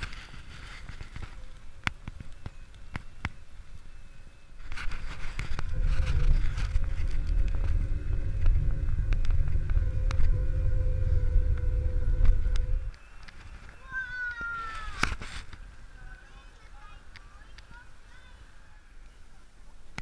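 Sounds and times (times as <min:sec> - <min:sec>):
low rumble of wind and ground: 0:00.0 - 0:20.0
faint electric motor whine: 0:01.6 - 0:13.8
bike clicks and rattles: 0:04.6 - 0:13.8.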